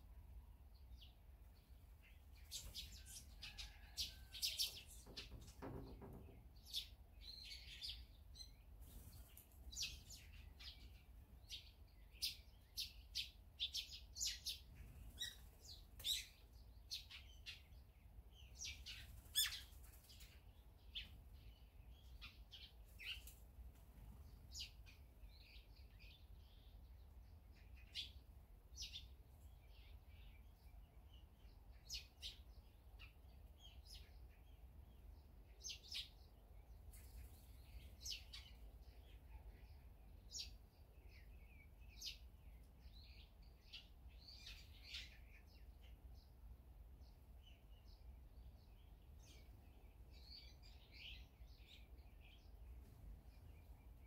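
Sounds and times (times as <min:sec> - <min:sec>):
small songbirds chirping: 0:00.0 - 0:54.0.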